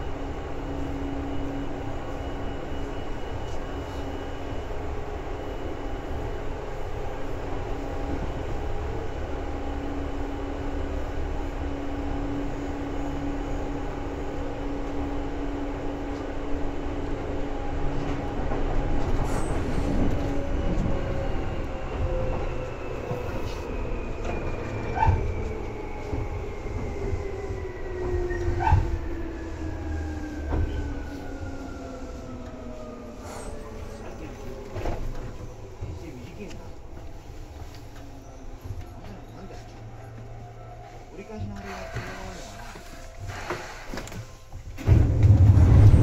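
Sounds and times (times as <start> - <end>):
electric train rumbling: 0.0 - 46.0.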